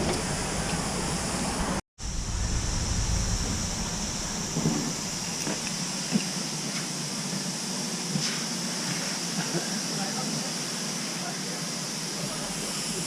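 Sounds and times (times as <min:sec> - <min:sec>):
low rumble: 0:00.3 - 0:06.1
steady hiss: 0:01.3 - 0:13.0.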